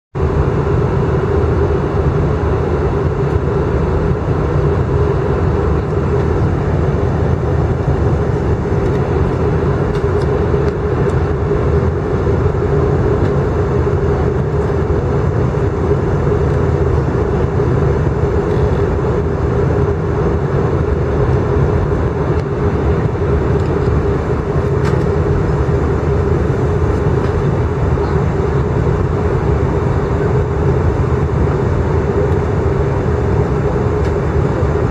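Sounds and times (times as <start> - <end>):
airplane cabin engine noise: 0.2 - 34.9
constant hum: 0.2 - 34.9.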